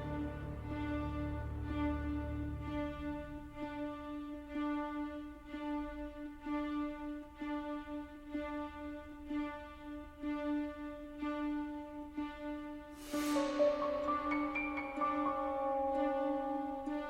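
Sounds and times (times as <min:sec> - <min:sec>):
bowed strings pulsing: 0:00.0 - 0:04.6, 0:13.0 - 0:17.0.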